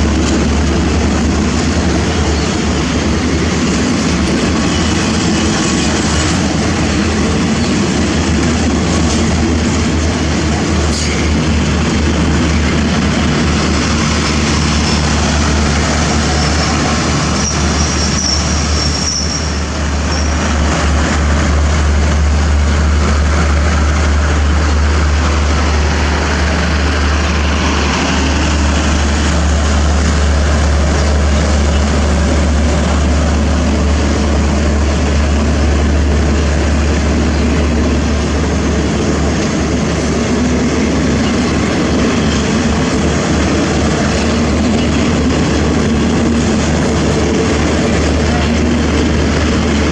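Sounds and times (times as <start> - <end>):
train rumbling: 0.0 - 49.9
faint high squeal: 17.4 - 20.3.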